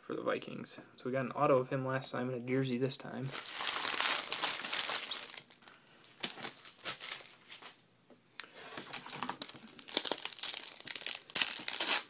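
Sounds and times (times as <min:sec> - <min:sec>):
card packaging rustling and crinkling: 0:03.3 - 0:07.8, 0:08.8 - 0:12.0.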